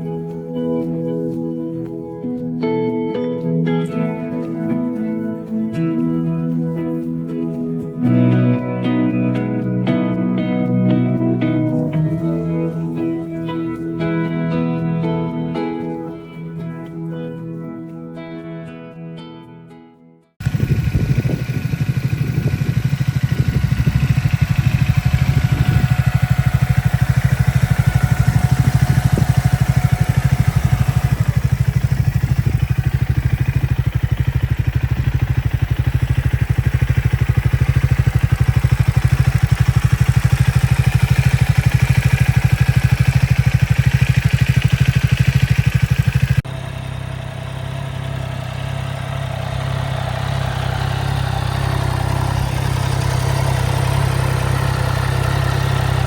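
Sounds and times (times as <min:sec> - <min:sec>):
motorcycle engine running: 0:00.0 - 0:17.6, 0:20.4 - 0:56.0
another motorcycle engine: 0:20.4 - 0:56.0.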